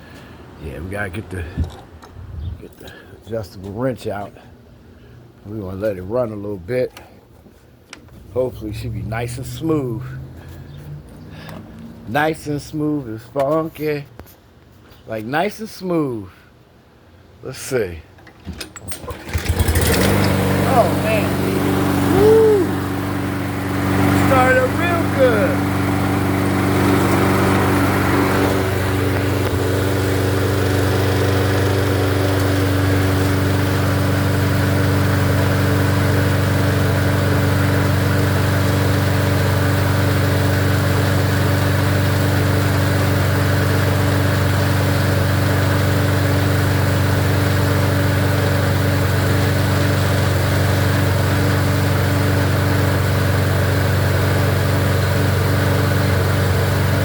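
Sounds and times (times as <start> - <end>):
lawnmower engine running steadily: 18.3 - 57.0.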